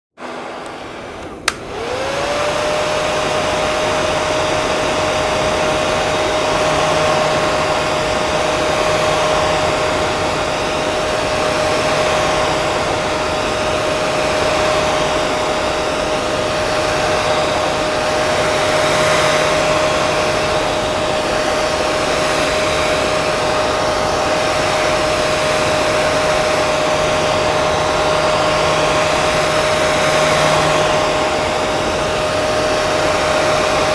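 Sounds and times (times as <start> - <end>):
hair dryer blowing: 0.2 - 33.9
switch click: 0.6 - 1.7.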